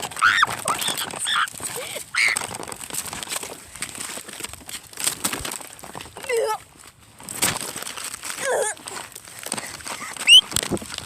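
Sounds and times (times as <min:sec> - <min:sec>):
person giving high-pitched cries: 0:00.2 - 0:02.4, 0:06.2 - 0:06.6, 0:08.4 - 0:09.0.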